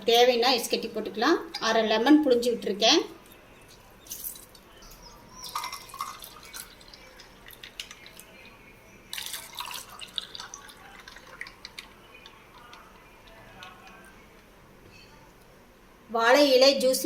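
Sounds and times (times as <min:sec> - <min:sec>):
liquid dripping into a glass: 0:05.4 - 0:14.2.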